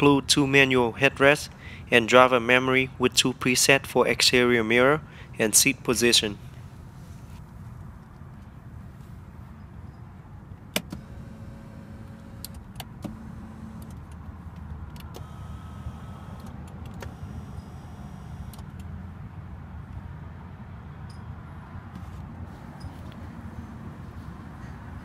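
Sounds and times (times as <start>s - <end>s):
seat switch clicks: 10.7s - 15.4s
power seat motors running: 10.7s - 18.9s.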